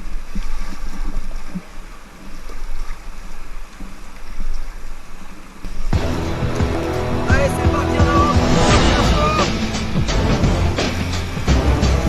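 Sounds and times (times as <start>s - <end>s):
paddles stroking through water: 0.0s - 12.0s
steady low rumble: 5.9s - 12.0s.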